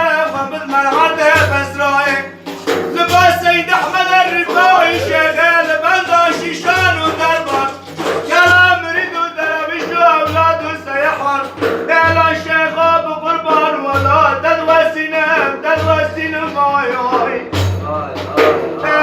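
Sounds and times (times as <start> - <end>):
man singing religious praise: 0.0 - 19.0.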